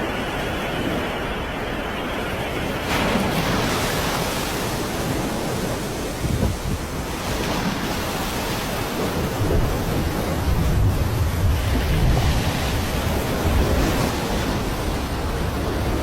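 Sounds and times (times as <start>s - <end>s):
moving water: 0.0s - 16.0s
wind: 0.0s - 16.0s
wind rumbling on microphone: 0.0s - 16.0s.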